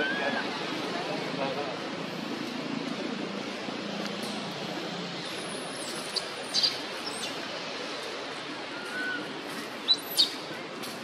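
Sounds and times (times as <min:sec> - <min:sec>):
birds chirping: 0:05.8 - 0:07.4.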